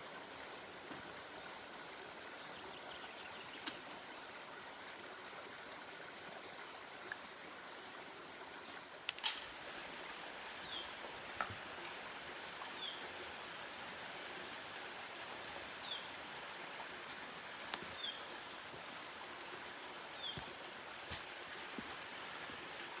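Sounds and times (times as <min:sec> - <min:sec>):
steady outdoor hiss: 0:00.0 - 0:23.0
songbird calling: 0:09.2 - 0:09.7, 0:13.8 - 0:14.2, 0:15.6 - 0:20.6, 0:21.7 - 0:22.0.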